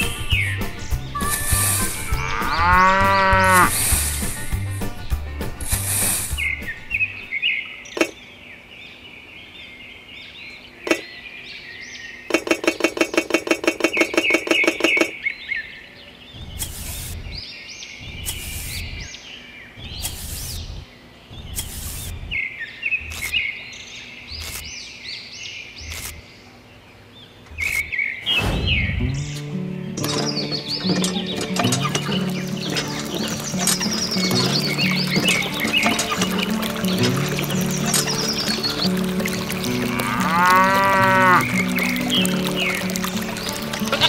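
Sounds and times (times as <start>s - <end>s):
birds chirping: 0.0s - 44.0s
objects knocking and scraping in sand: 16.4s - 17.3s, 18.0s - 19.1s, 19.8s - 22.4s.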